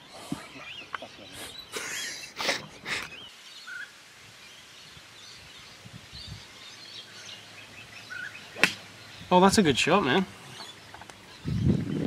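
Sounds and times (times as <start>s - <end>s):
bird chirps: 6.2s - 12.0s.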